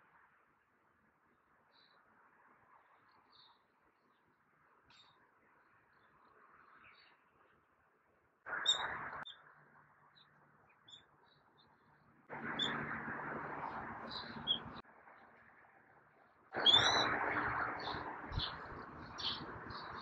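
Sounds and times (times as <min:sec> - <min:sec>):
high bird chirps: 0:08.6 - 0:09.4, 0:16.6 - 0:17.2, 0:17.8 - 0:20.0.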